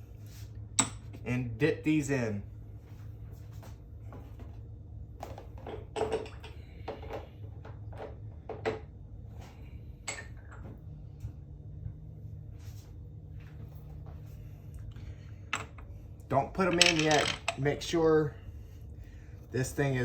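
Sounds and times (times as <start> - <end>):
metal parts clicking and knocking: 16.6 - 17.6.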